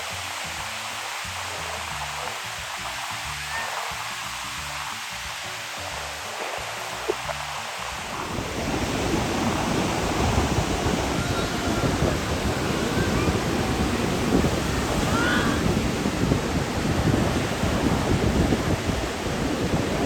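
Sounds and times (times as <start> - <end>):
wind buffeting the microphone: 0.0 - 20.0
ocean surf breaking: 5.6 - 20.0.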